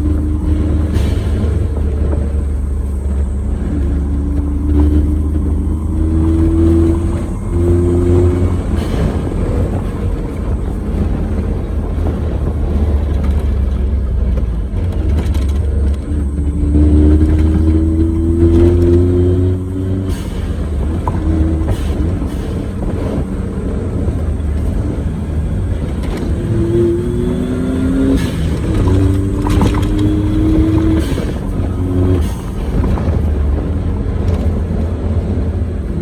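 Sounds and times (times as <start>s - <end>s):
engine and tyre rumble: 0.0s - 36.0s
pitched tyre hum: 0.0s - 36.0s.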